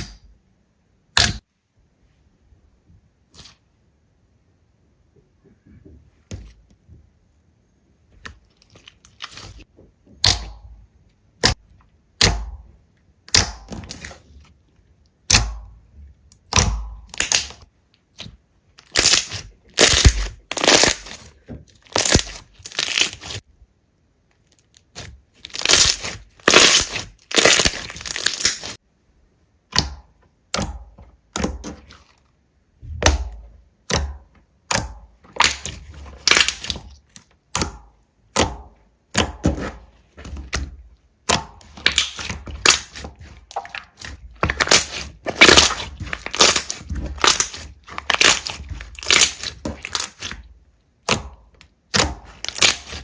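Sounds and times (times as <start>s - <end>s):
slime crackling and popping: 16.3s - 23.4s, 24.6s - 28.8s, 34.7s - 37.8s, 41.2s - 53.0s.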